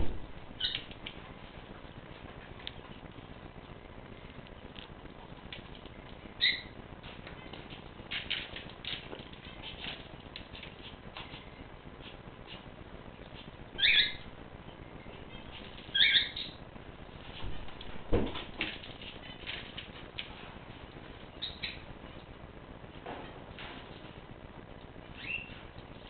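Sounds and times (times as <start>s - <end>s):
cage birds chirping: 0.5s - 1.0s, 5.8s - 8.6s, 13.8s - 16.6s, 21.3s - 22.2s, 25.1s - 26.0s.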